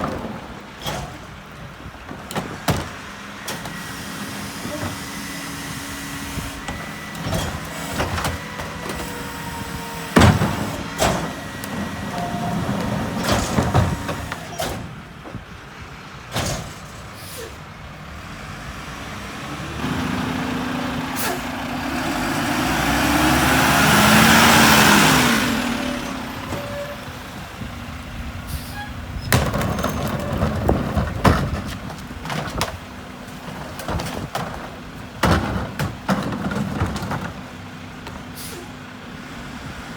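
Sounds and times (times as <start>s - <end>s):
garbage truck diesel engine: 0.0s - 39.9s
vehicle passing: 18.0s - 26.4s.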